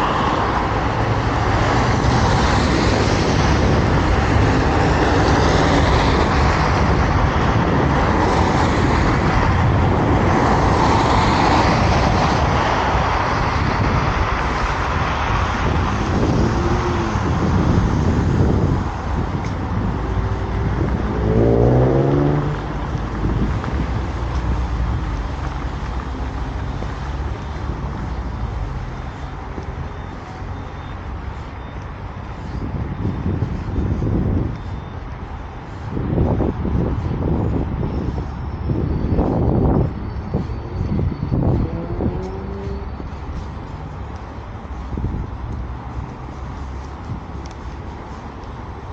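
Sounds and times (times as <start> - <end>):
cars driving past: 0.0 - 48.9
vehicle engine speeding up: 15.8 - 18.9, 19.8 - 24.2, 39.4 - 43.1.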